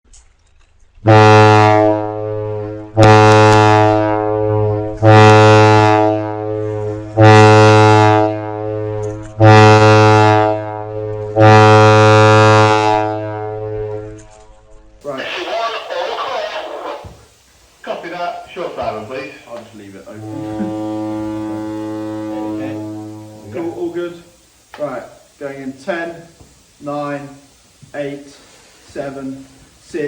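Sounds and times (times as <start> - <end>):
low warning horn blasts: 1.0 - 14.2, 18.6 - 23.7.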